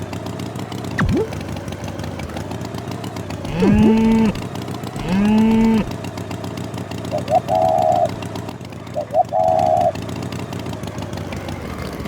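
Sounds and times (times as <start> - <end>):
engine-like rumble: 0.0 - 12.0
swooping pitch sound effects: 1.0 - 1.4, 3.5 - 4.4
cartoon cow mooing: 3.5 - 4.4, 5.0 - 5.9.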